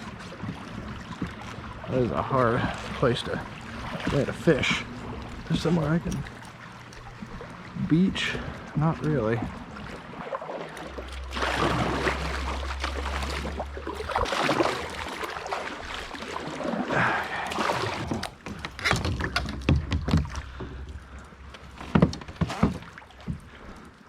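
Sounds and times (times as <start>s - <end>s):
water splashing around kayak: 0.0s - 24.0s
low rumble: 10.8s - 18.4s
knocks against kayak hull: 21.8s - 23.5s.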